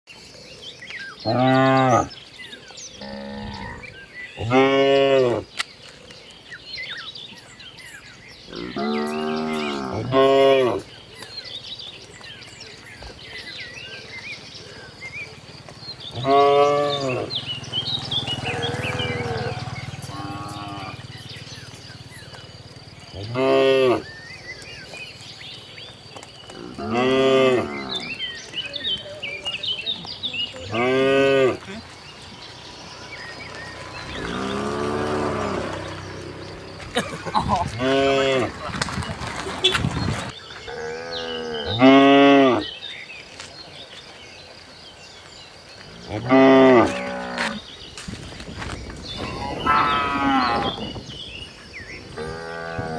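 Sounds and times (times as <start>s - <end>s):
cattle mooing: 3.0s - 5.4s, 8.5s - 10.8s, 16.2s - 21.1s, 33.9s - 42.6s, 46.1s - 47.6s, 49.2s - 50.8s.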